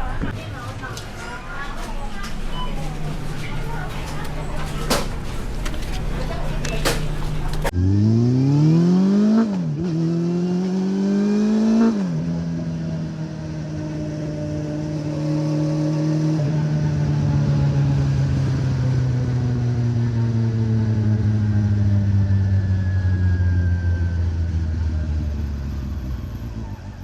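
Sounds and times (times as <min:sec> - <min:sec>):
motorcycle engine revving: 0:03.0 - 0:23.2.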